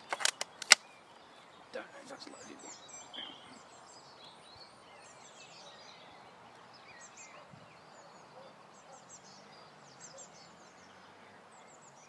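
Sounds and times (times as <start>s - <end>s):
birds chirping and whistling: 0.0s - 12.0s.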